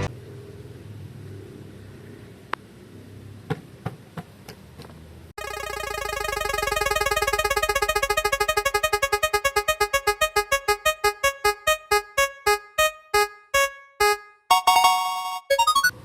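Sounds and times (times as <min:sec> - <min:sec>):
repeated electronic notes slowing: 0:05.4 - 0:15.9.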